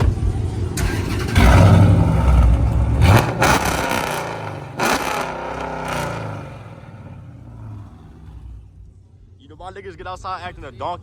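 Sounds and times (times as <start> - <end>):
car engine revving and idling: 0.0 - 9.3.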